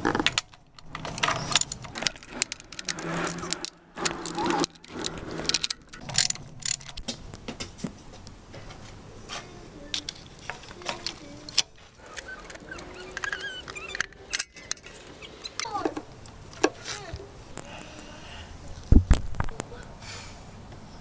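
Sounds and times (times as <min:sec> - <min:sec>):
metal tools clinking and knocking: 0:00.0 - 0:07.1, 0:09.9 - 0:17.1.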